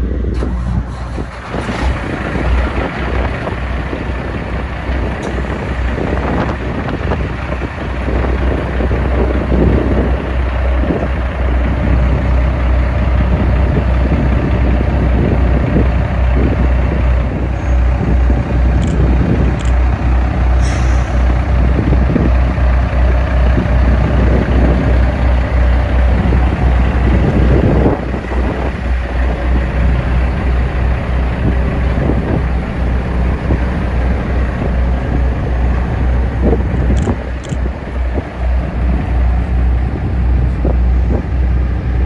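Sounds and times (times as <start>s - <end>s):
diesel engine rumbling: 0.0s - 42.0s
short clicks: 18.8s - 19.8s, 36.9s - 37.6s.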